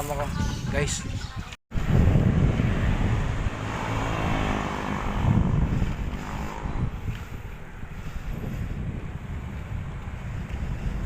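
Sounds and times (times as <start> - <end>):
traffic noise: 0.0 - 11.0
wind buffeting microphone: 0.0 - 11.0
motor vehicle passing: 1.8 - 11.0.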